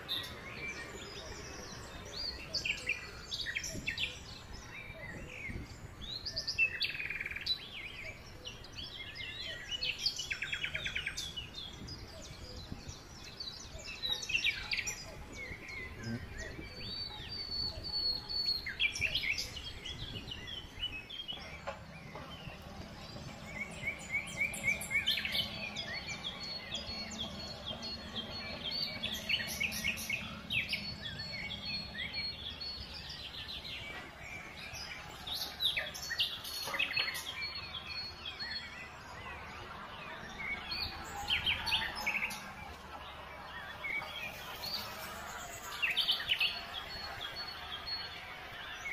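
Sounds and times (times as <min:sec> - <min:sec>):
songbirds chirping and trilling: 0:00.0 - 0:48.9
tractor engine hum: 0:19.0 - 0:48.9.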